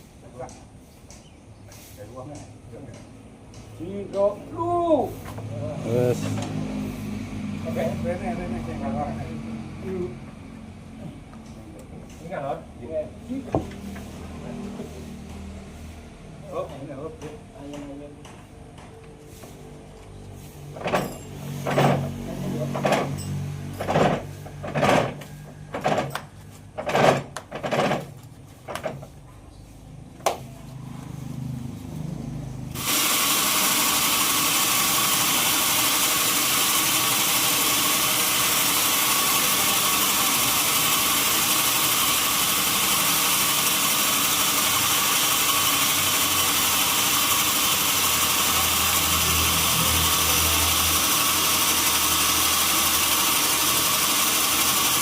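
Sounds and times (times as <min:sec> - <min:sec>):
saw machinery whirring: 0:32.7 - 0:55.0.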